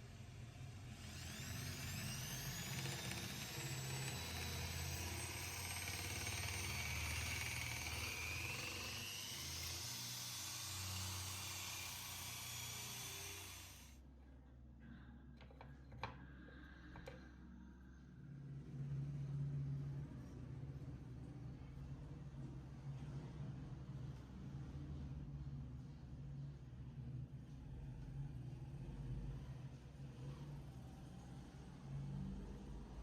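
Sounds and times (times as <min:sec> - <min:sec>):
power tool grinding whine: 0:00.2 - 0:14.0.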